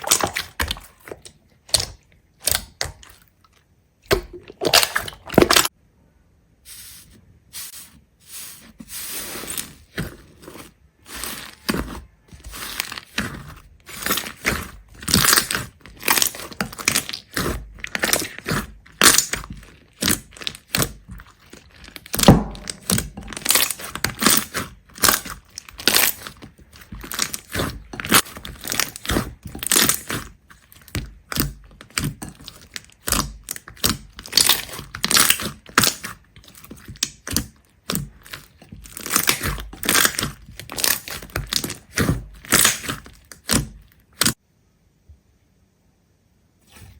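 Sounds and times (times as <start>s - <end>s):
crisp material crunching: 7.7s - 44.4s.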